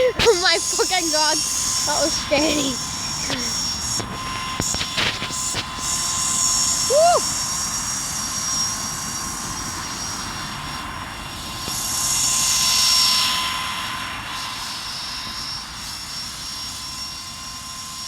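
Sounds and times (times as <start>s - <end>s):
drone motors whining: 0.0s - 7.4s.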